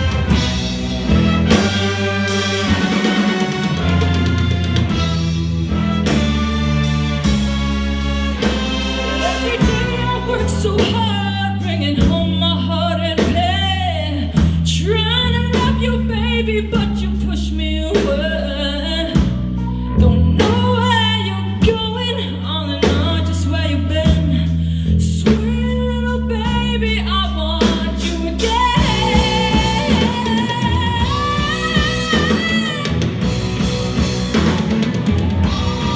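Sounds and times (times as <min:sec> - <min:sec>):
electric guitar: 0:00.0 - 0:10.7, 0:28.8 - 0:35.9
bass guitar: 0:00.0 - 0:35.9
drums: 0:00.0 - 0:35.9
wordless wavering vocal lines: 0:09.0 - 0:10.9.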